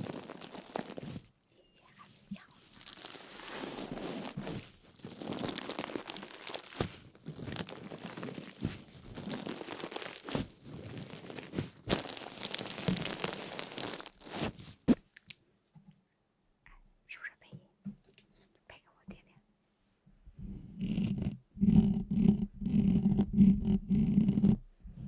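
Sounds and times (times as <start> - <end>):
crinkling and crunching: 0.0 - 1.4, 2.3 - 15.4.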